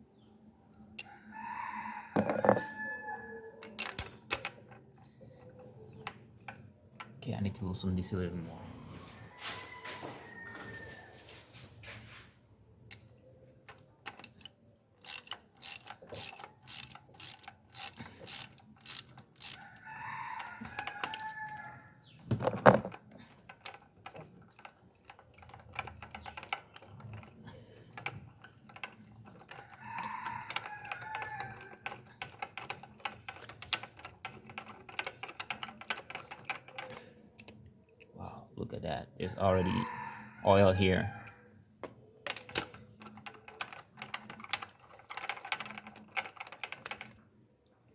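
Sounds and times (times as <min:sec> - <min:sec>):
ratchet wrench clicking: 0:13.7 - 0:21.3.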